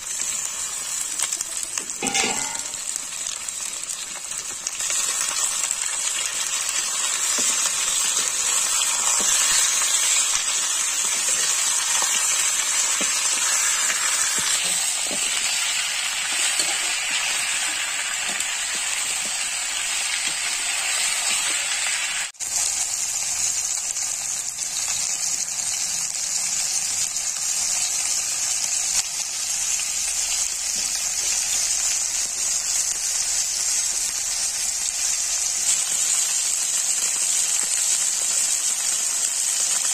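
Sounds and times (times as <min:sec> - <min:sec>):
chicken sizzling in hot oil: 0:00.0 - 0:39.9
metal spoon scraping: 0:02.0 - 0:02.8, 0:08.9 - 0:19.4.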